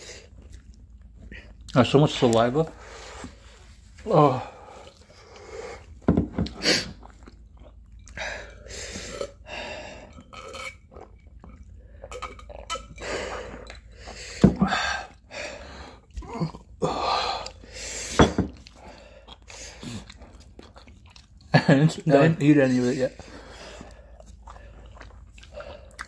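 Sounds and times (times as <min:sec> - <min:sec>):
person chewing noodles: 0:00.0 - 0:01.8, 0:04.4 - 0:26.0
person drinking: 0:04.3 - 0:21.5, 0:22.3 - 0:26.0
hissing breaths: 0:16.8 - 0:20.1.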